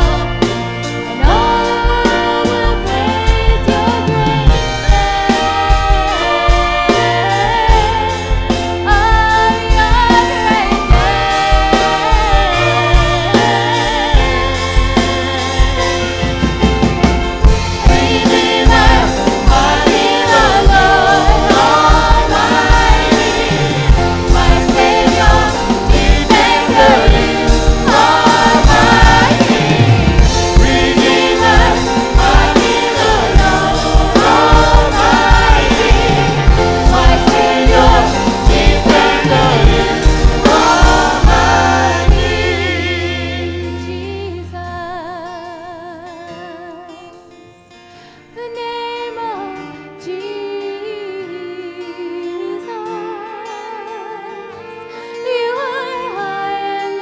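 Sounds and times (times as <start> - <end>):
choir singing gospel song with band: 0.0 - 44.8.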